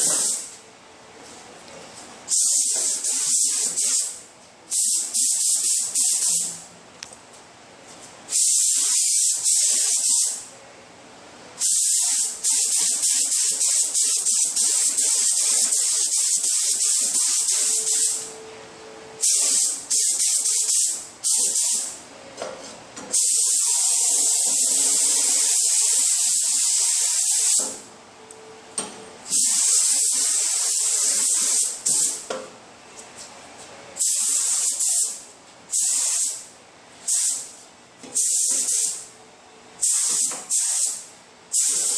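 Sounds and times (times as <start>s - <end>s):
spray gun hissing: 0.0s - 0.5s, 2.3s - 6.5s, 8.3s - 10.4s, 11.6s - 18.2s, 19.2s - 22.0s, 23.1s - 27.8s, 29.3s - 32.2s, 34.0s - 36.5s, 37.1s - 37.5s, 38.2s - 39.0s, 39.8s - 41.9s.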